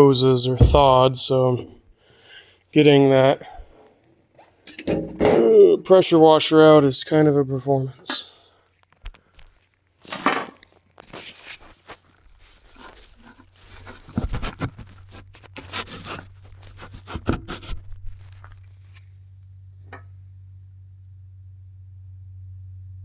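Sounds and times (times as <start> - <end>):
equipment rustling and knocking: 0.6 - 1.2
low hum: 0.6 - 1.3, 18.7 - 23.0.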